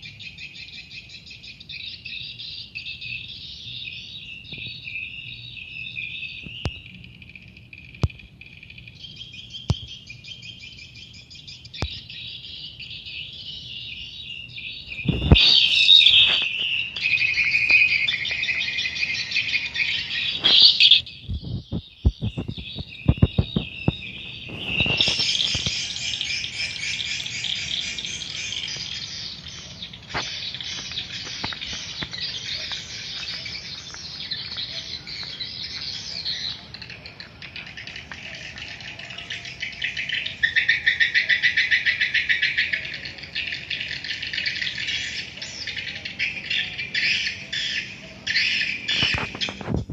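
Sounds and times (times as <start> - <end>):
swiftlets chirping: 20.2 - 21.0.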